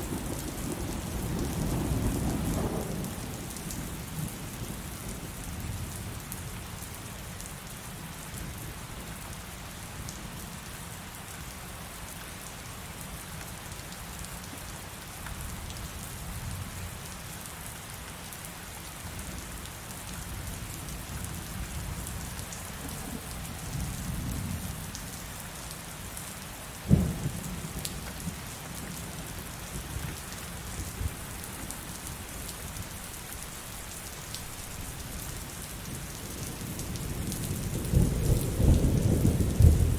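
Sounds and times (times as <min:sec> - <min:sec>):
heavy rain: 0:00.0 - 0:39.9
low rolling thunder: 0:00.1 - 0:03.6, 0:26.9 - 0:30.0, 0:35.8 - 0:39.9.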